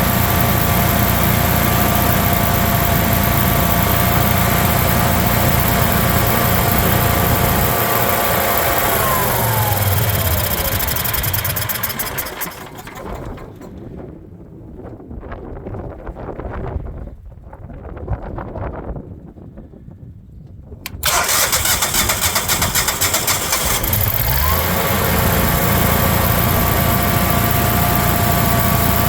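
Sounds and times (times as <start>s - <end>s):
generator engine whining: 0.0s - 13.8s, 20.9s - 29.0s
slowing ticks of engine coasting: 0.0s - 13.8s, 20.9s - 29.0s.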